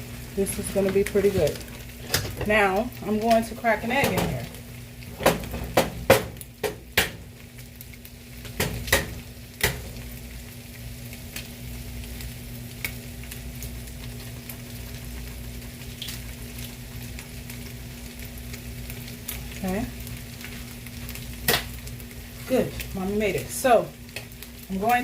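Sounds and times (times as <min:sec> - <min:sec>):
bacon sizzling in a pan: 0:00.0 - 0:25.0.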